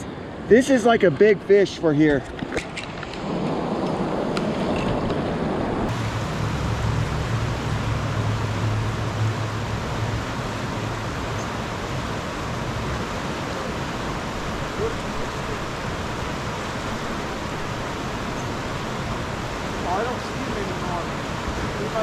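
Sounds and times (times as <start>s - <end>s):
low rumble: 5.6s - 13.3s
creek water flowing: 5.8s - 22.0s.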